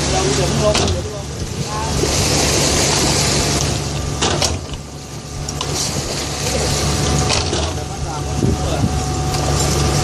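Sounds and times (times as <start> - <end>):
boat engine humming: 0.0 - 10.0
sharp knocks and clanks: 4.2 - 4.8.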